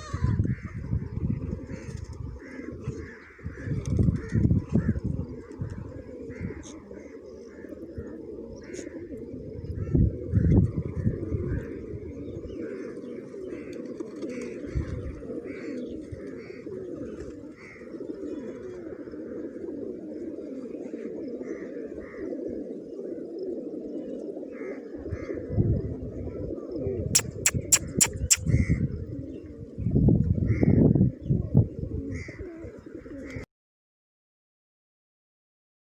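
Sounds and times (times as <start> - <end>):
pigeons cooing: 0.0 - 33.5
high bird chirps: 27.2 - 28.5
sharp clicks: 27.2 - 28.5.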